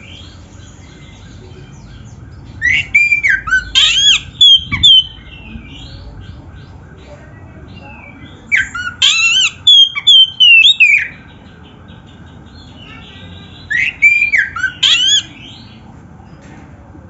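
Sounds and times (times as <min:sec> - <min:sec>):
bird singing whistled phrases: 0:00.9 - 0:06.1, 0:07.8 - 0:11.2, 0:13.6 - 0:15.7.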